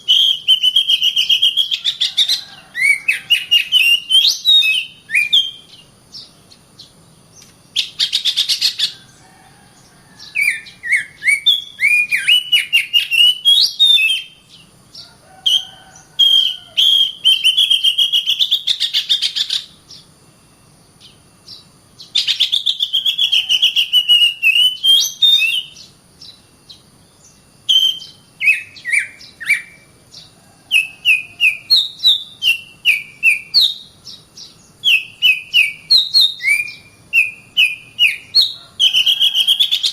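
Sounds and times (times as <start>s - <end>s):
bird singing whistles and chatter: 0.0s - 5.8s, 10.3s - 14.4s, 15.4s - 19.7s, 22.0s - 25.9s, 27.7s - 29.8s, 30.7s - 39.9s.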